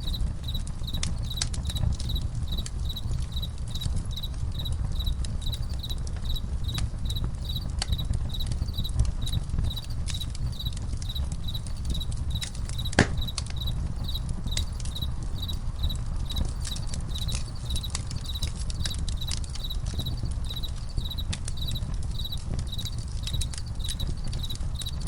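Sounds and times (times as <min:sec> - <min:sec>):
campfire crackling and popping: 0:00.0 - 0:25.0
cricket chirping: 0:00.0 - 0:25.0.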